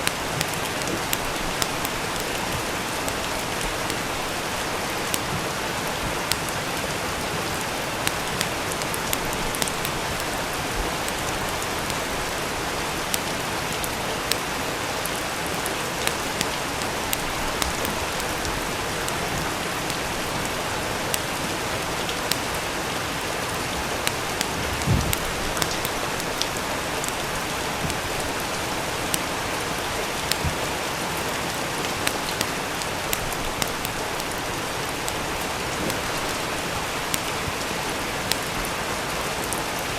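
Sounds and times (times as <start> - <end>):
steady rain: 0.0 - 39.9
wood fire crackling: 0.0 - 39.9
low thump: 24.6 - 25.2.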